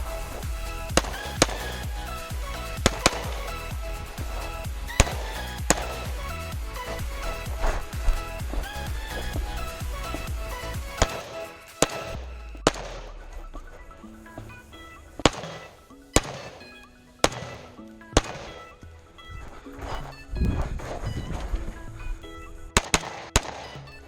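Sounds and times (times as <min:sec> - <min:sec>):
background music: 0:00.0 - 0:24.0
rifle shots: 0:10.1 - 0:13.7, 0:15.2 - 0:18.8, 0:22.8 - 0:23.8.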